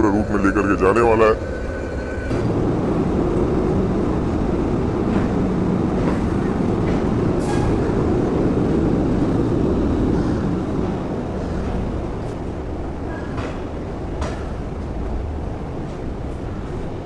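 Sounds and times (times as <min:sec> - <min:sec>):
diesel locomotive engine rumble: 0:00.0 - 0:17.0.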